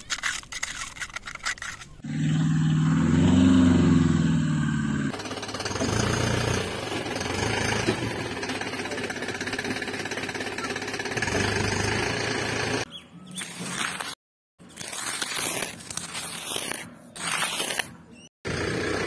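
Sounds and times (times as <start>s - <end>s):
fast mechanical rattle: 5.1s - 12.9s.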